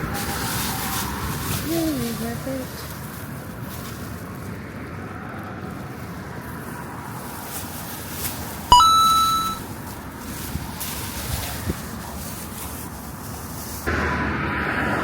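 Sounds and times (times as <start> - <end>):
bright metallic ding: 8.7 - 9.6.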